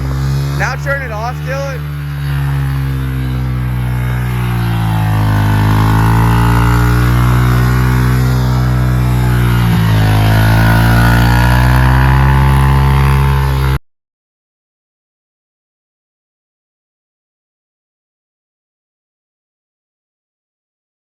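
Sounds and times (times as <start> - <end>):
small motorbike engine revving: 0.0 - 13.8.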